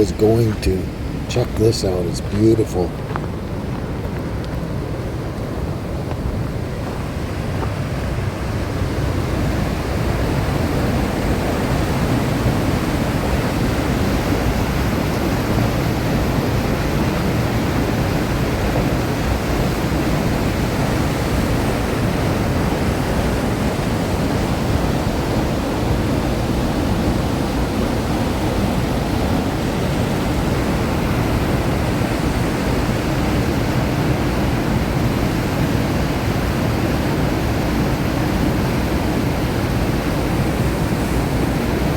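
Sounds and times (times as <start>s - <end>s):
waterfall rushing: 0.0s - 3.0s.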